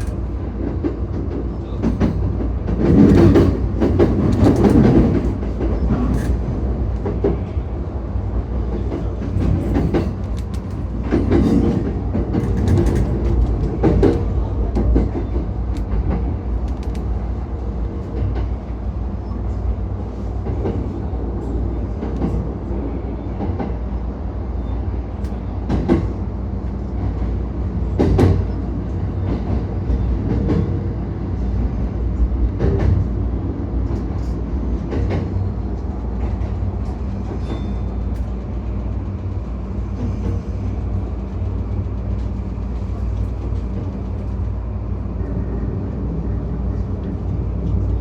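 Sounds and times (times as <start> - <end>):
wheels clacking over rails: 0.0 - 7.5
train rumbling: 0.0 - 48.0.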